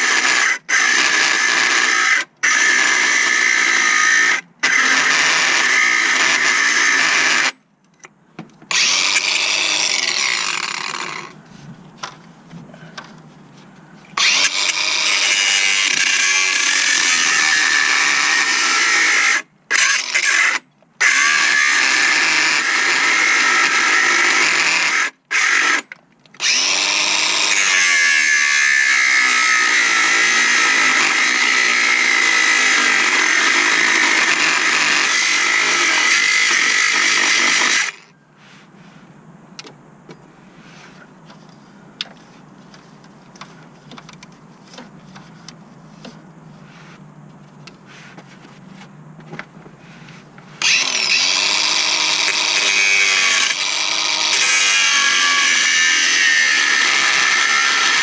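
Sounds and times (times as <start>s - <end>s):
power tool motor running: 50.6s - 58.0s.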